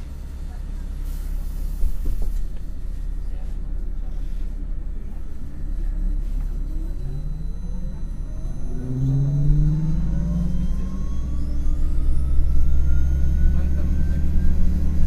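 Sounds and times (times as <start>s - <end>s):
bus engine rumbling: 0.0s - 15.0s
rising drivetrain whine: 5.0s - 15.0s.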